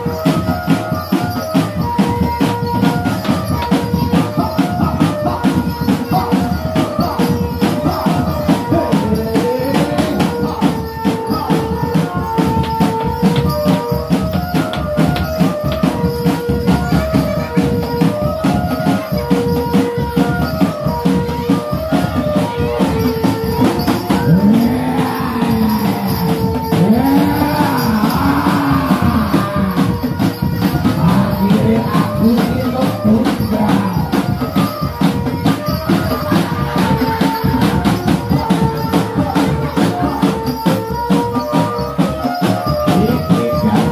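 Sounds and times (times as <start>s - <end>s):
fast dense percussion with jingling: 0.0s - 43.9s
high repeating melodic figure: 20.6s - 42.1s.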